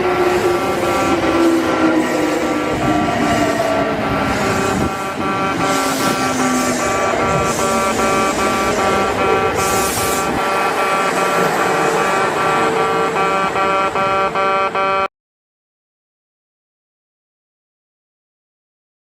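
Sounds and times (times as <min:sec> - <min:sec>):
railway crossing bell ringing: 0:00.0 - 0:14.9
electric train motor whine: 0:00.0 - 0:15.1.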